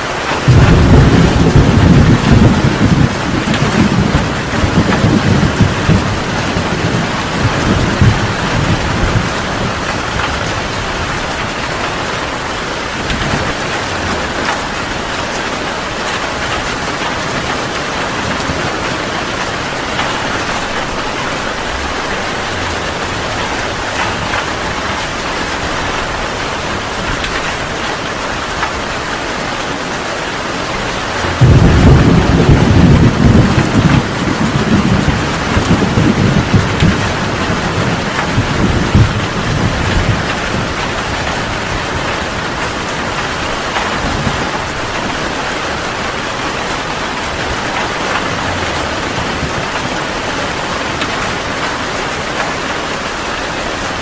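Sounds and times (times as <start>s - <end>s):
heavy rain pouring: 0.0s - 54.0s
thunder rumbling: 0.0s - 54.0s.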